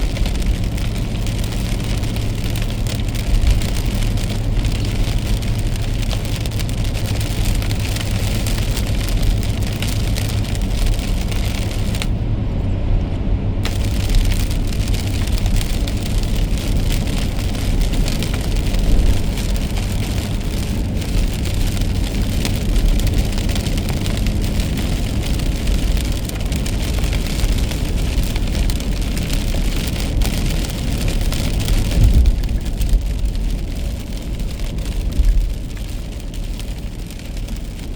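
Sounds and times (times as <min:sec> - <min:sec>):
rain and wet tyres hissing: 0:00.0 - 0:12.6, 0:13.5 - 0:37.9
car engine and road rumble: 0:00.0 - 0:37.9.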